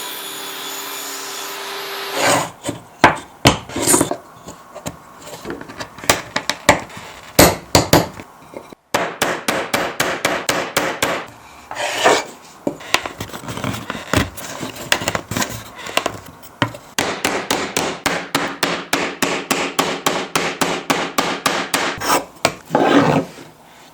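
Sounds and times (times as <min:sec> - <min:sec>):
wood scraping on wood: 0:02.2 - 0:06.0, 0:11.7 - 0:17.0, 0:22.0 - 0:23.6
hammer knocking on wood: 0:07.4 - 0:08.2.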